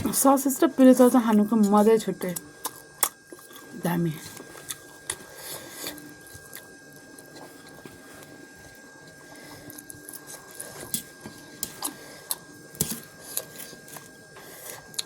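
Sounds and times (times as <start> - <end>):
faint high whine: 0.0 - 15.0
noodles being chewed: 1.0 - 15.0.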